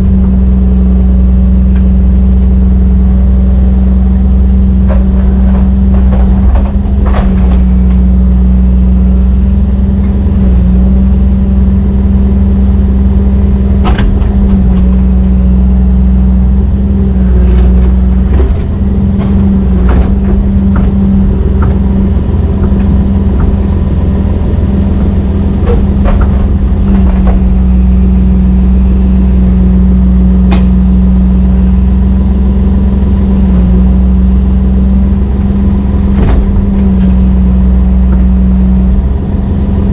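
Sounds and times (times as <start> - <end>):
excavator diesel engine droning: 0.0 - 39.9
machine clanks and knocks: 4.8 - 8.5, 13.8 - 15.5, 17.1 - 30.9, 36.1 - 39.2.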